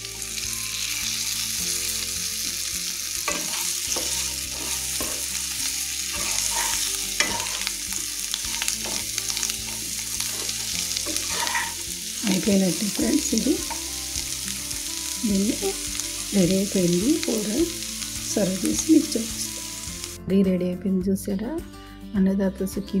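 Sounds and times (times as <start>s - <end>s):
food sizzling in oil: 0.0s - 20.2s
spatula scraping and knocking pan: 3.3s - 5.3s, 6.1s - 7.7s, 8.5s - 11.9s.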